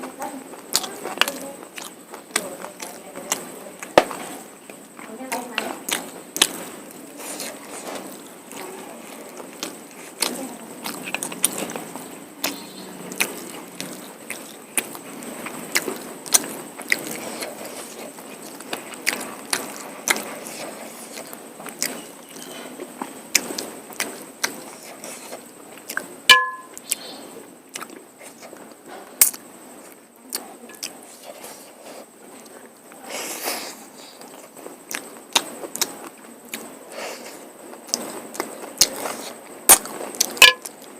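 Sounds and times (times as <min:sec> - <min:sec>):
wet chewing and lip smacks: 0:00.5 - 0:32.7, 0:33.3 - 0:40.9.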